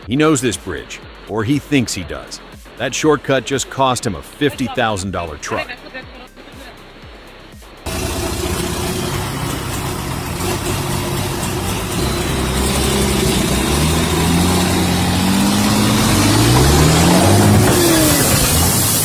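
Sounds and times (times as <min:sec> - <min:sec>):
heavy vehicle engine revving: 0:07.8 - 0:19.0.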